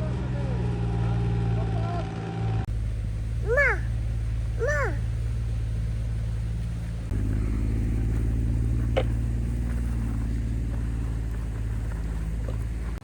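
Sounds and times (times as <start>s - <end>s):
excavator diesel engine running: 2.7s - 13.0s.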